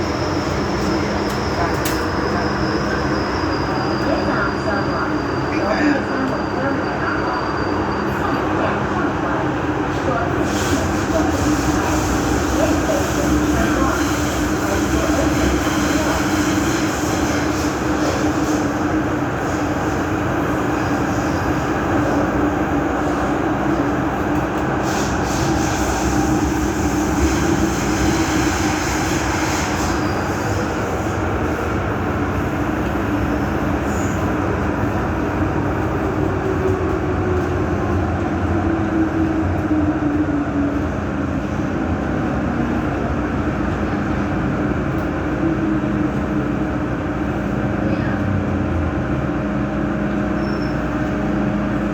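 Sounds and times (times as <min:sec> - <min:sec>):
metro train rumble in tunnel: 0:00.0 - 0:51.9.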